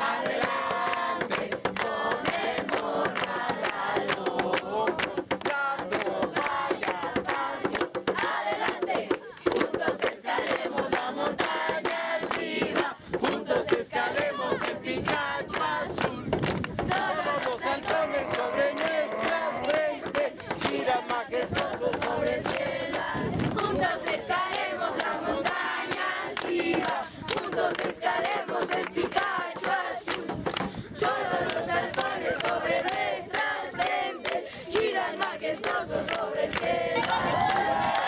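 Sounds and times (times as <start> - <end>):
group shouting and chanting: 12.8 - 15.4, 16.9 - 22.4, 36.3 - 38.0.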